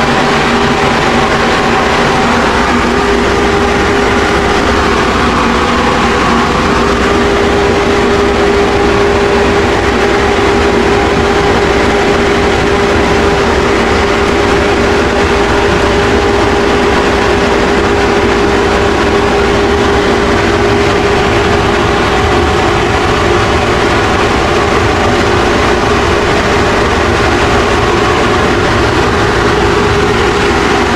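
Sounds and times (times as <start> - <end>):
machine motor humming: 0.0 - 30.9.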